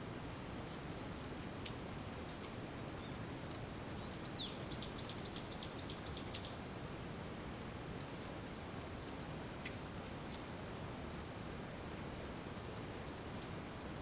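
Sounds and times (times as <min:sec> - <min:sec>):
steady rain: 0:00.0 - 0:14.0
bird calling: 0:04.0 - 0:06.6.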